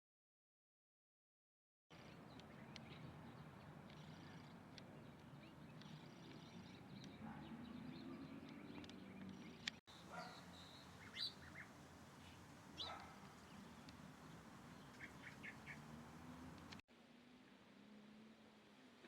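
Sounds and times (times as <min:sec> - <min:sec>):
bird chirps: 0:02.0 - 0:16.8.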